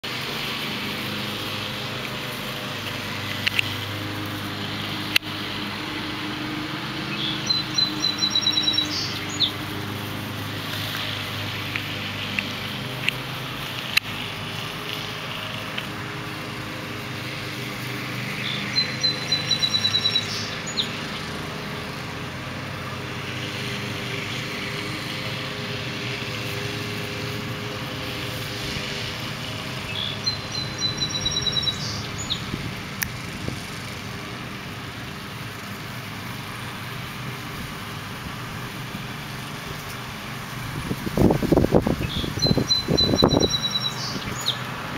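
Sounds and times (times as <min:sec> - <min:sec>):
songbird trilling: 0:07.0 - 0:09.7, 0:18.3 - 0:21.3, 0:29.8 - 0:32.6, 0:41.9 - 0:44.7.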